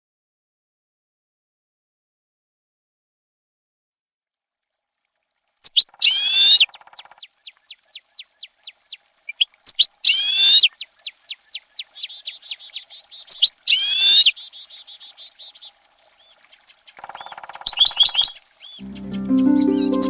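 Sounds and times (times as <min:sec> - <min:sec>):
high falling bird chirps: 0:05.6 - 0:20.0.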